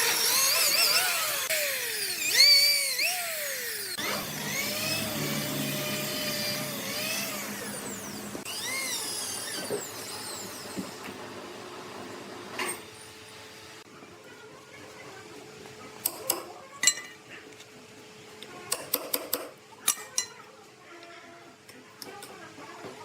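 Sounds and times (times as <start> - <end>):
sawmill saw whining: 0.0 - 13.8.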